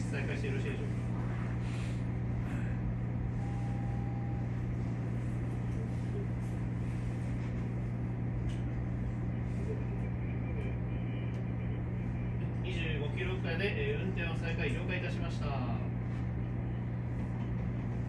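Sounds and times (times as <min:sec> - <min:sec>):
train equipment low hum: 0:00.0 - 0:18.0
faint tone: 0:03.3 - 0:04.8, 0:09.2 - 0:13.2.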